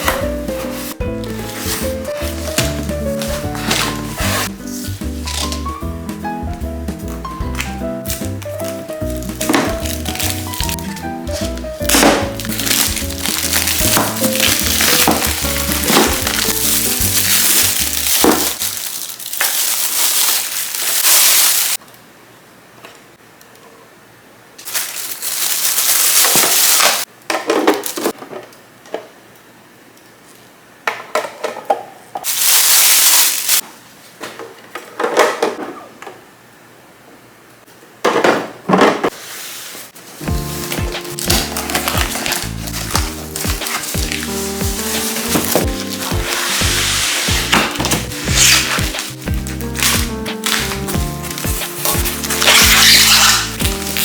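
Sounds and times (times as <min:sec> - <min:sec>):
plastic packaging rustling: 0:00.0 - 0:05.8, 0:07.2 - 0:21.8, 0:24.6 - 0:27.1, 0:32.2 - 0:33.6, 0:39.1 - 0:54.0
background music: 0:00.0 - 0:18.7, 0:40.2 - 0:54.0.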